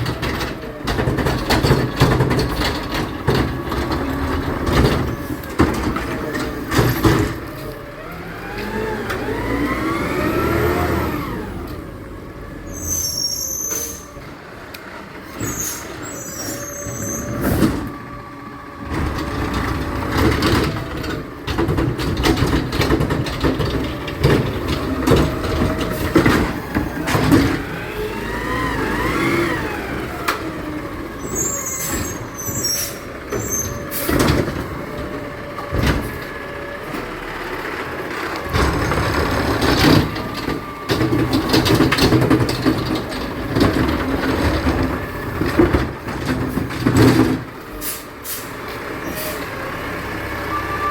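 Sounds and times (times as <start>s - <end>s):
metal clanks and knocks: 0.0s - 7.7s, 18.9s - 27.9s, 33.2s - 37.1s, 38.5s - 47.8s
diesel engine running: 0.0s - 50.9s
high squeals: 12.7s - 14.2s, 15.4s - 17.5s, 31.2s - 34.1s.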